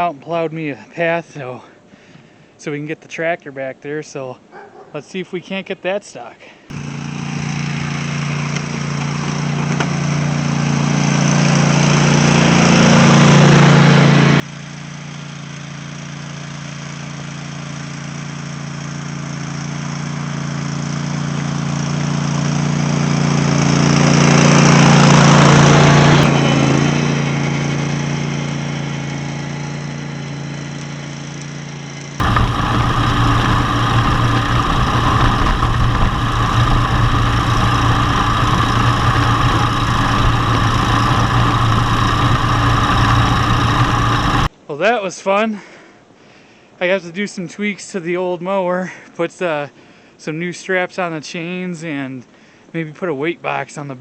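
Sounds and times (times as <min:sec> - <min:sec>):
lawn tractor engine under load: 0:06.7 - 0:14.4, 0:18.8 - 0:30.9, 0:32.2 - 0:44.5.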